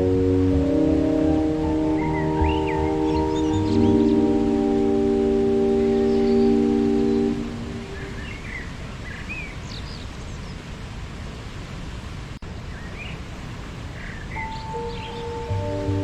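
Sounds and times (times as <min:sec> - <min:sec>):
waterfall rushing: 0:00.0 - 0:16.0
small birds chirping: 0:01.3 - 0:10.7, 0:12.7 - 0:16.0.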